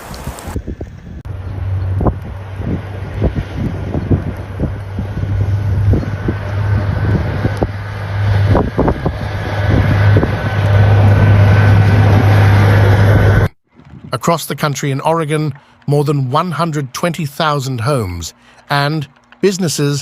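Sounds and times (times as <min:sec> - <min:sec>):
wind buffeting microphone: 0:00.0 - 0:14.6
vehicle running: 0:00.1 - 0:20.0.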